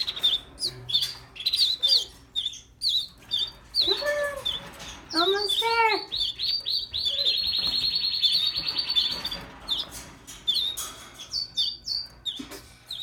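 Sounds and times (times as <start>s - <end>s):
baby bird begging chirps: 0.0s - 9.8s.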